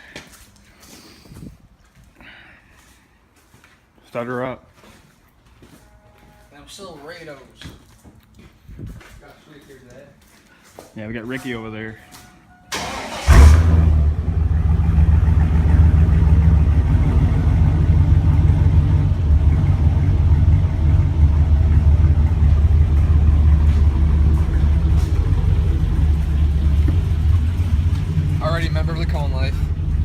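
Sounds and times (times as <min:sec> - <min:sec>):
pickup engine starting and idling: 0:12.7 - 0:30.0.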